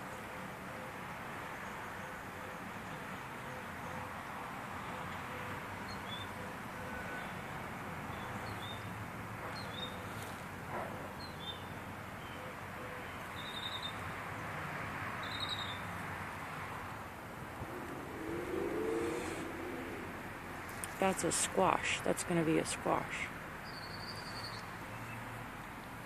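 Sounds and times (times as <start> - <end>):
background hiss: 16.2 - 25.3.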